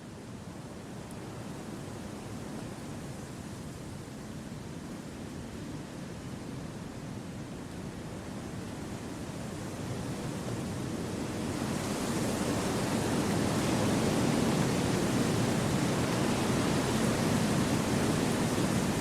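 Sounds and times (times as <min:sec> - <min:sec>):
wind through trees: 0:06.8 - 0:19.0.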